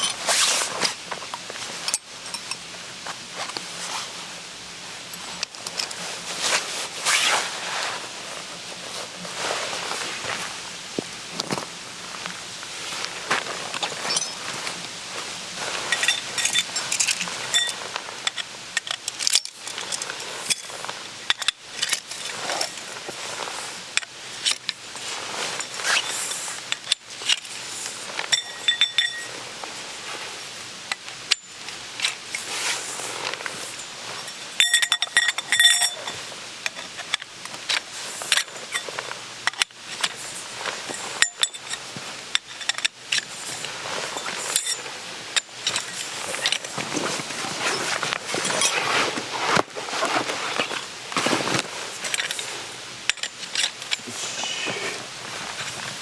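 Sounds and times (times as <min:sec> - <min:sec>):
gear rustling: 0:00.0 - 0:04.2, 0:05.2 - 0:56.0.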